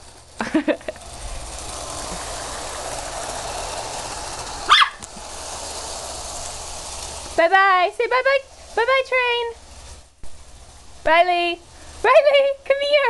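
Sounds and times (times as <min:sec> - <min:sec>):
toy train whirring: 0:00.0 - 0:13.0
puppy barking: 0:04.7 - 0:05.0.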